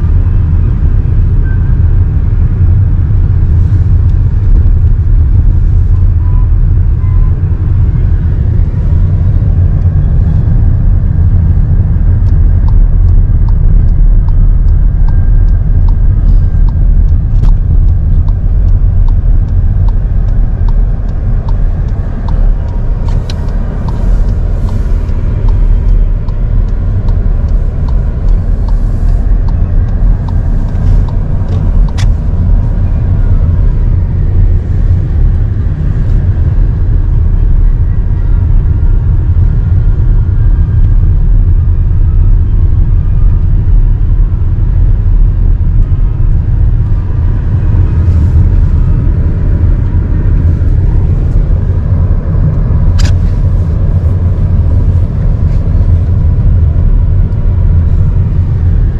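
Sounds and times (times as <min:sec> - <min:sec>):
car road and engine rumble: 0:00.0 - 0:58.9.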